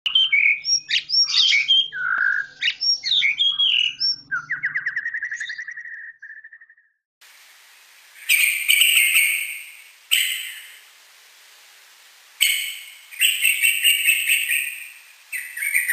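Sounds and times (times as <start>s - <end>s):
bird singing chirping phrases: 0.1s - 6.9s, 8.2s - 10.8s, 12.4s - 15.9s
harsh hissing bursts: 7.2s - 15.6s
background hiss: 7.2s - 15.9s.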